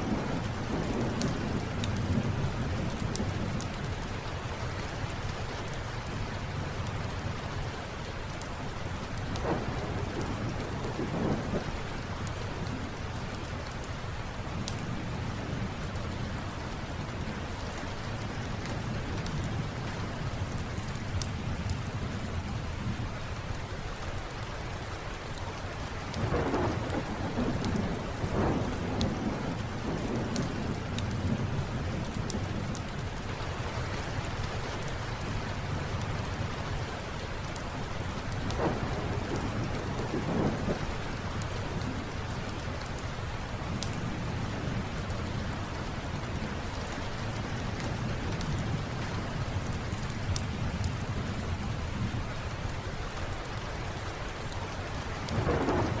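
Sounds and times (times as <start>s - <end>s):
steady rain: 0.0s - 56.0s
thunder rolling: 9.4s - 11.7s, 26.2s - 32.6s, 38.4s - 40.9s, 55.3s - 56.0s
wood fire crackling: 25.1s - 56.0s.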